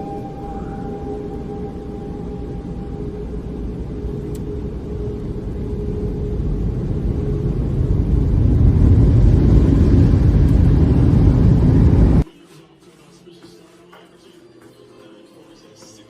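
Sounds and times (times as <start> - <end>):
faint steady tone: 0.0 - 12.2
low rumbling noise: 0.0 - 12.2.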